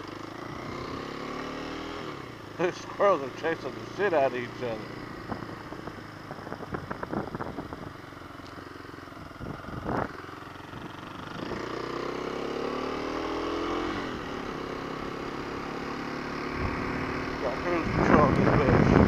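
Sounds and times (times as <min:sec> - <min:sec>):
motorcycle engine running: 0:00.0 - 0:19.0
wind noise: 0:05.2 - 0:08.0, 0:09.4 - 0:10.1, 0:17.7 - 0:19.0.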